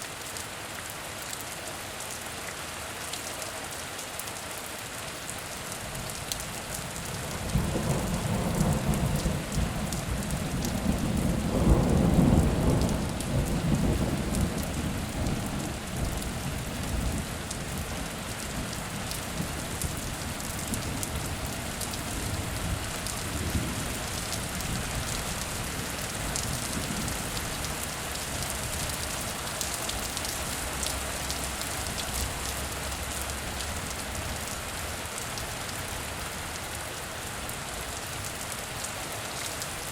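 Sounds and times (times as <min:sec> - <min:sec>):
heavy rain falling: 0:00.0 - 0:39.9
thunder rumbling: 0:07.4 - 0:16.3.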